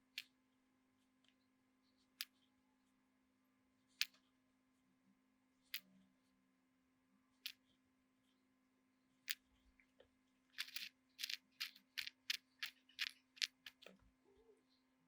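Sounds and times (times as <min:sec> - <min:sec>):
sharp small clicks: 0:10.6 - 0:14.0.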